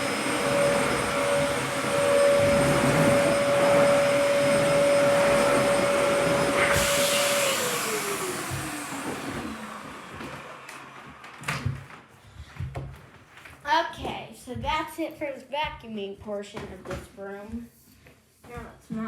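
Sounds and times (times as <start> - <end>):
vacuum cleaner motor spinning down: 0.0 - 12.1.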